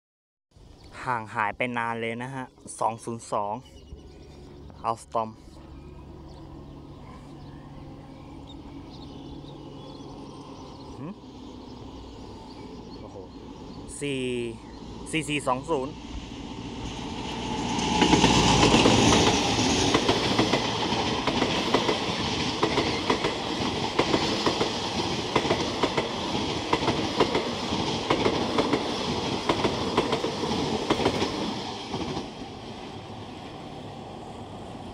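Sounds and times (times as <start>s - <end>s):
locomotive passing loudly: 3.9s - 34.9s
wheels clickety-clack: 17.7s - 32.8s.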